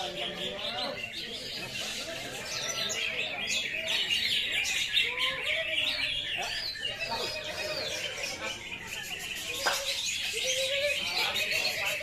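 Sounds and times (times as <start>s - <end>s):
faint voices: 0.0s - 12.0s
songbirds chorus: 0.0s - 12.0s.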